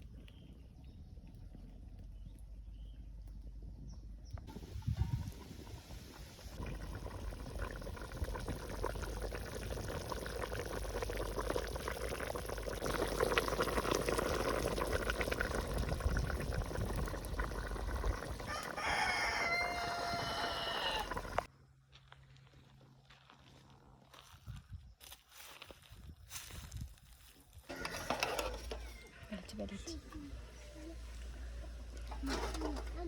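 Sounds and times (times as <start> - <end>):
rooster crowing: 18.4 - 21.5, 27.7 - 29.4.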